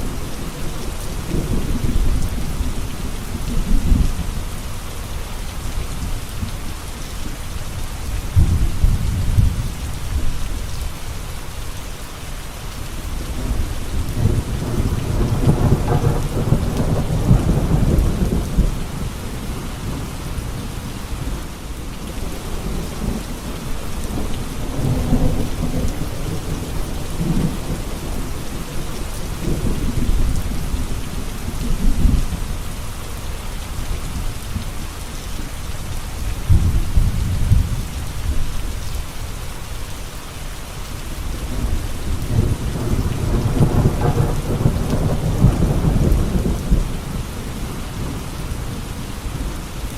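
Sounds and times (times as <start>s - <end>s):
steady rain falling: 0.0s - 49.9s
low rolling thunder: 8.1s - 10.7s, 13.2s - 32.7s, 36.2s - 38.6s, 41.3s - 49.6s.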